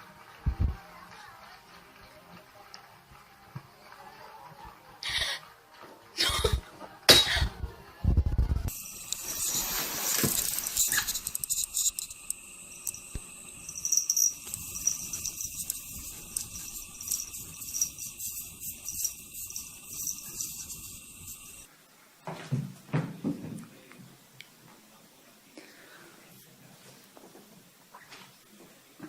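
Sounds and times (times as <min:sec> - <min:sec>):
metallic jingling: 0:13.6 - 0:21.0.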